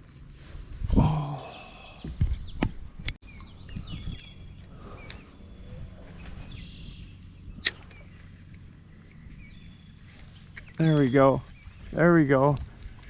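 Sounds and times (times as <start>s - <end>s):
small birds chirping: 1.0s - 12.6s
low steady hum: 3.2s - 11.9s.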